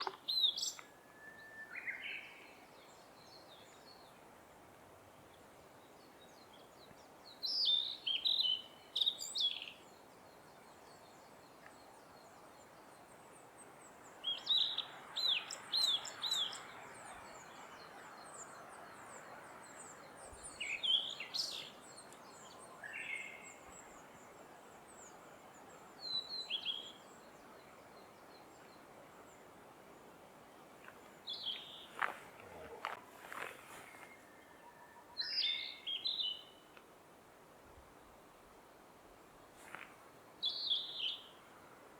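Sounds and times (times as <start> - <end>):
bird singing whistled notes: 0.3 - 2.4, 33.9 - 36.6.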